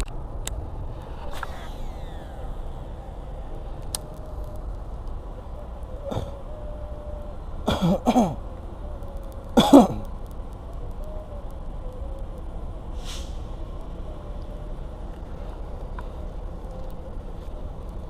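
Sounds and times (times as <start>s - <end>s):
low outdoor rumble: 0.0s - 18.0s
man clearing throat and coughing: 7.7s - 8.4s, 9.6s - 10.0s.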